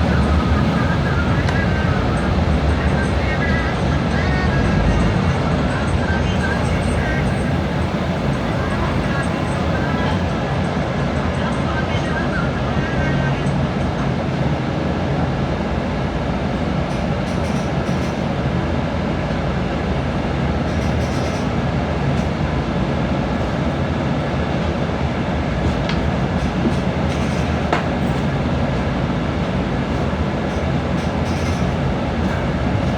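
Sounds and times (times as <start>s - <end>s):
faint clicks: 0.0s - 4.4s
low hum: 0.0s - 10.6s
vehicle rumble and hiss: 0.0s - 14.6s, 25.2s - 32.9s.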